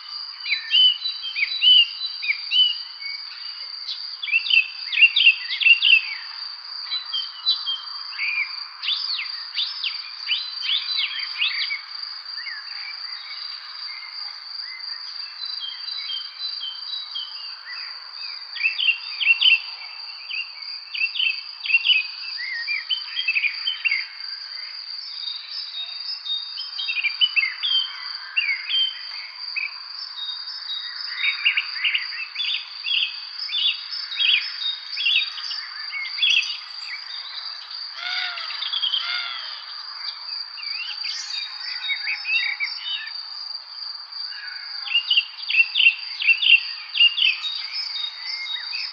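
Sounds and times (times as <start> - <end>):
songbirds chirping: 0.0 - 48.9
high-pitched insect trill: 30.0 - 48.9.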